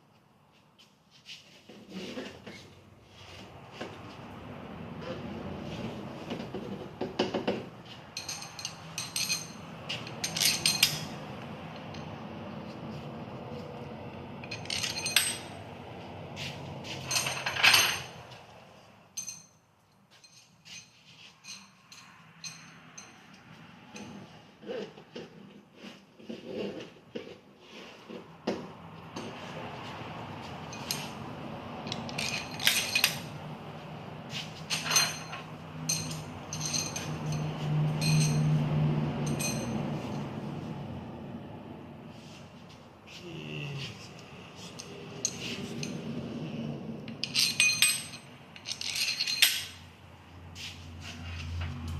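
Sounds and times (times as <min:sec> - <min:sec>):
metal bolts clinking: 0:08.2 - 0:12.1, 0:14.4 - 0:15.6, 0:17.0 - 0:18.2, 0:19.2 - 0:19.6, 0:31.9 - 0:33.4, 0:34.6 - 0:38.6, 0:39.2 - 0:40.2, 0:47.1 - 0:49.9.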